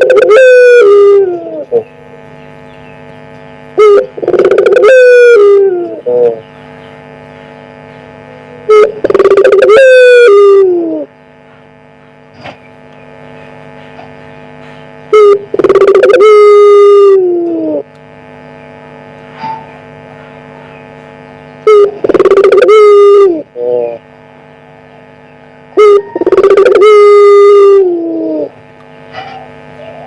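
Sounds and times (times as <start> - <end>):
dove cooing loudly: 0.0 - 1.9, 3.8 - 6.4, 8.6 - 11.1, 15.1 - 17.9, 21.7 - 24.0, 24.9 - 28.6
faint steady hum: 0.0 - 30.0.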